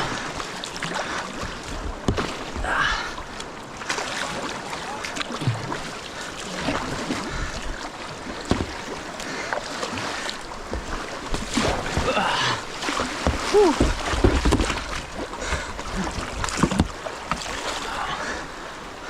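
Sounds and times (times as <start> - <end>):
paddle splashes: 0.0 - 19.0
river water rushing: 0.0 - 19.0.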